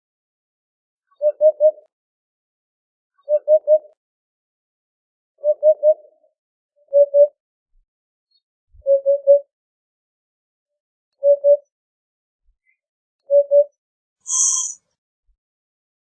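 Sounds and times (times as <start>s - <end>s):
bird soft hooting song: 1.1s - 1.9s, 3.2s - 4.0s, 5.4s - 6.2s, 6.8s - 7.4s, 8.8s - 9.5s, 11.2s - 11.7s, 13.3s - 13.7s.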